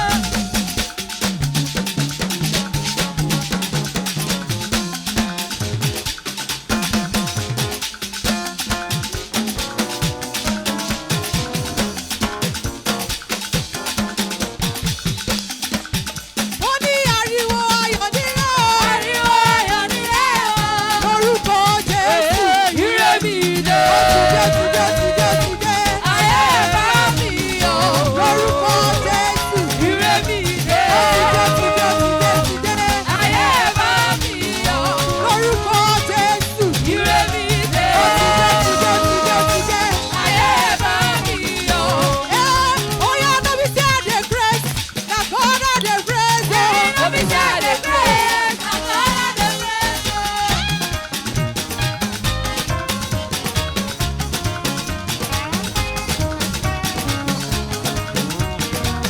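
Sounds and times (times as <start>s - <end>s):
choir singing praise song: 0.0s - 1.6s, 18.7s - 43.6s, 46.4s - 50.5s
live band with drums: 0.0s - 59.0s
shaker percussion: 0.0s - 59.0s
drum and bass beat: 18.4s - 45.0s.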